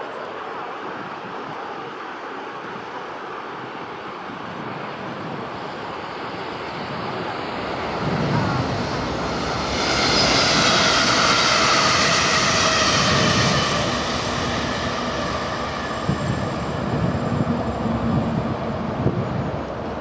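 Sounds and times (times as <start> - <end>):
electric train passing: 3.3 - 20.0
falling whine: 5.7 - 20.0.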